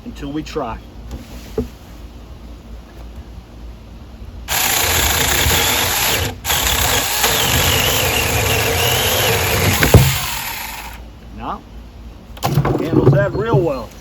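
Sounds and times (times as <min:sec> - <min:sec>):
cordless chainsaw cutting limb: 0:04.5 - 0:11.0.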